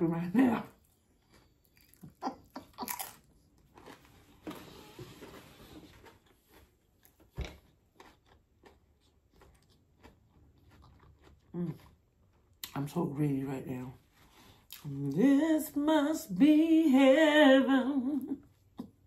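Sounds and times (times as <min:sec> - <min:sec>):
chewing and mouth sounds: 0:00.7 - 0:04.1, 0:06.0 - 0:12.8.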